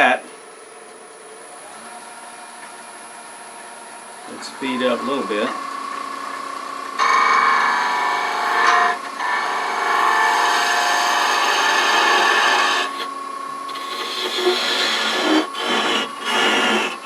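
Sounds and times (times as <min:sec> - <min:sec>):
lathe motor hum: 0:04.3 - 0:17.0
turning tool scraping wood: 0:08.4 - 0:17.0.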